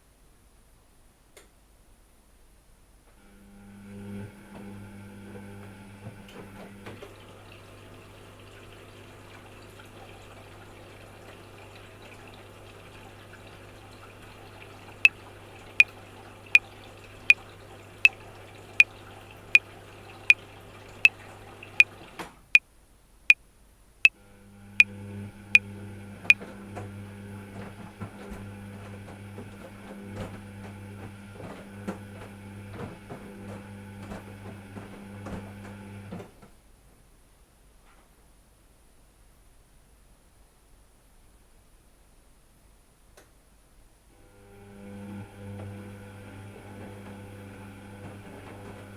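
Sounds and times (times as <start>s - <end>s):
washing machine humming: 3.2s - 22.3s, 24.2s - 36.5s, 44.2s - 48.9s.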